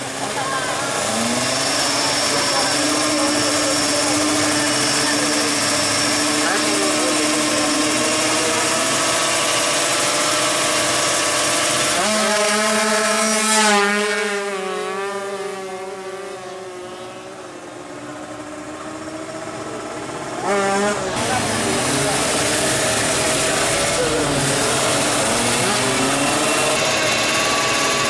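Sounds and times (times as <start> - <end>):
two-stroke motorcycle passing: 0.0 - 28.0.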